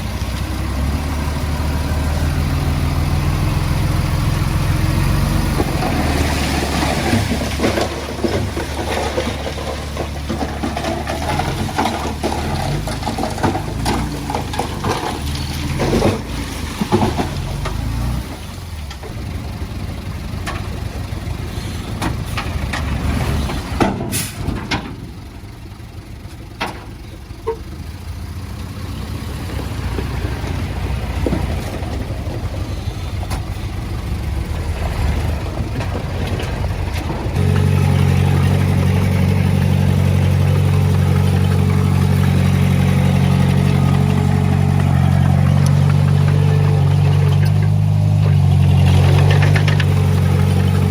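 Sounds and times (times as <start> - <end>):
diesel machinery rumble: 0.0 - 50.9
loud diesel engine: 0.0 - 50.9
metal knocks and clanks: 35.3 - 50.9.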